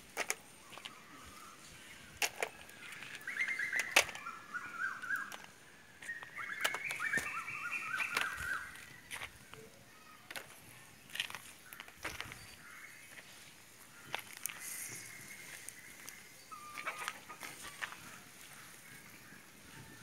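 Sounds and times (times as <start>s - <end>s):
sharp clicks: 2.2s - 4.3s
bird whistling song: 2.8s - 9.1s, 14.6s - 17.8s.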